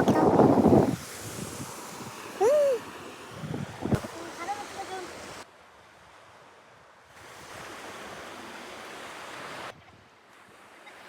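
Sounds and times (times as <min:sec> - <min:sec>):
sea waves rushing: 0:00.0 - 0:05.5, 0:07.1 - 0:09.8.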